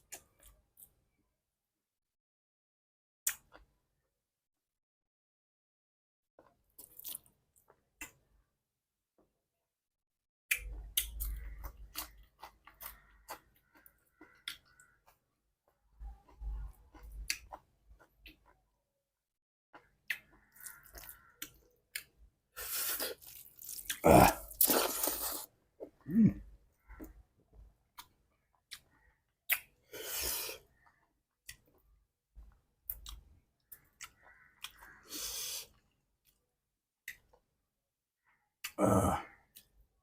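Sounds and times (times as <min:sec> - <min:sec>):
wet mouth clicks: 0:03.2 - 0:03.6, 0:28.7 - 0:29.7
person chewing food: 0:06.4 - 0:08.2, 0:10.5 - 0:18.7, 0:19.7 - 0:36.4.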